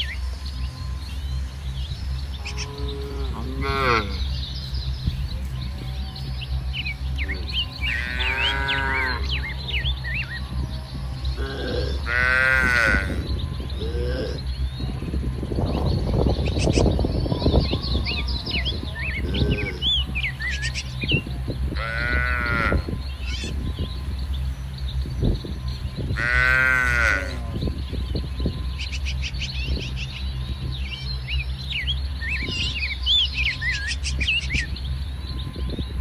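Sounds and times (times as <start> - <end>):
small birds chirping: 0.0 - 36.0
steady low rumble: 0.0 - 36.0
cattle mooing: 2.4 - 4.4, 7.1 - 9.8, 11.3 - 14.8, 19.0 - 20.8, 21.7 - 23.5, 26.2 - 27.8.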